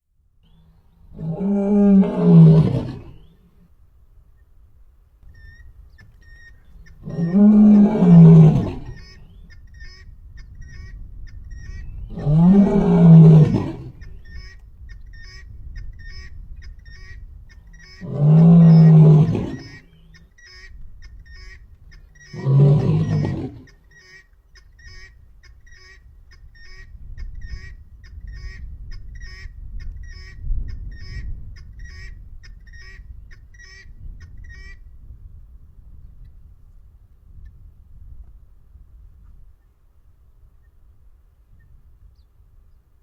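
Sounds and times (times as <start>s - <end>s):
lion roaring: 1.1s - 3.2s, 7.0s - 8.9s, 12.1s - 13.9s, 18.0s - 19.6s, 22.3s - 23.6s
faint high chirp: 5.2s - 7.0s.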